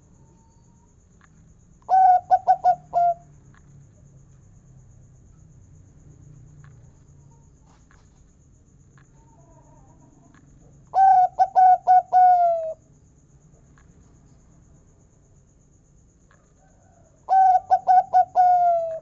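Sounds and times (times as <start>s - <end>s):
dove cooing: 1.9s - 3.2s, 10.9s - 12.8s, 16.8s - 19.0s.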